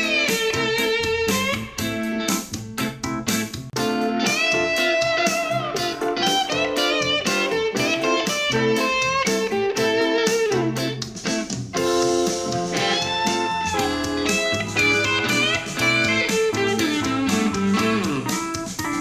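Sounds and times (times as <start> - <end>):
blues electric guitar music: 0.0 - 19.0.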